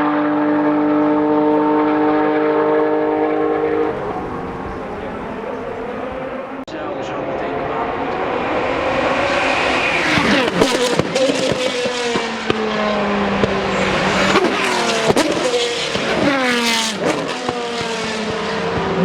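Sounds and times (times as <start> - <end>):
race cars passing at speed: 0.0 - 19.0
exhaust pops: 13.4 - 16.4.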